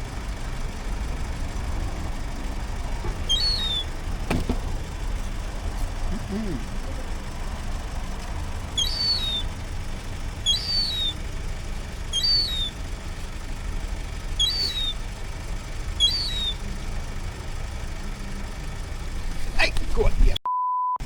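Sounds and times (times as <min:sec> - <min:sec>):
bird chirping: 0:03.2 - 0:03.9, 0:08.7 - 0:09.6, 0:10.4 - 0:11.2, 0:12.1 - 0:12.8, 0:14.3 - 0:15.0, 0:16.0 - 0:16.6.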